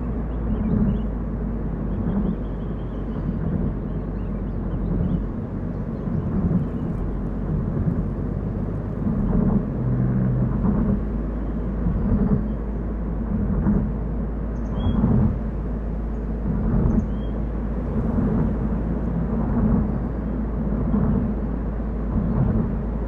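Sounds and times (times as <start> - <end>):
car tyres and engine rumble: 0.0 - 23.0.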